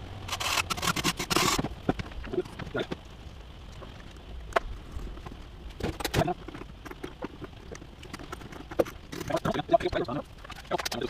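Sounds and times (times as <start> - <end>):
small hard objects clicking: 5.9 - 11.0.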